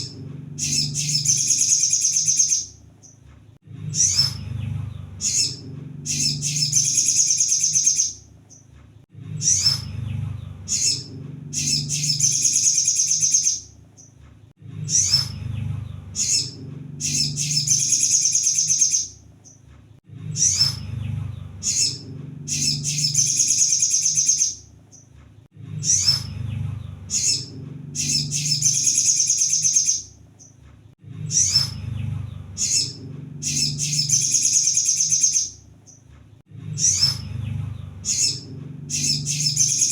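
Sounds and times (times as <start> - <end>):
sunbird song chirps and trill: 0.0 - 3.2, 3.8 - 8.7, 9.3 - 14.2, 14.8 - 25.1, 25.7 - 30.6, 31.2 - 36.1, 36.7 - 39.9.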